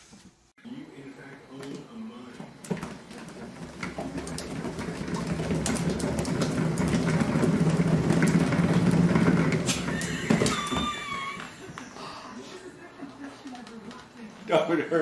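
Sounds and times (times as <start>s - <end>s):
clicks and rattles: 2.6s - 11.0s.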